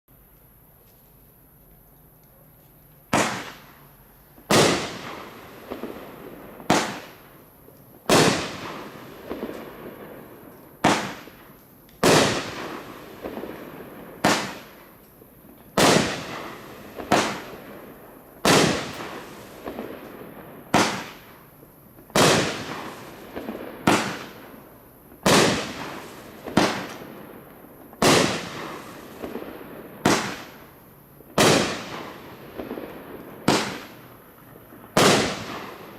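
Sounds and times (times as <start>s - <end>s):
firework cake sharp bangs: 3.1s - 3.9s, 4.5s - 7.4s, 8.0s - 15.0s, 15.7s - 24.6s, 25.2s - 34.1s, 34.9s - 35.9s.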